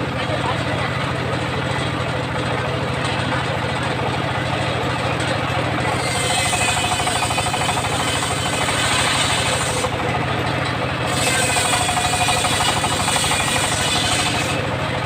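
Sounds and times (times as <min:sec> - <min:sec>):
sawmill engine low pulsing: 0:00.0 - 0:15.0
saw blade hissing: 0:05.9 - 0:09.9, 0:11.1 - 0:14.6.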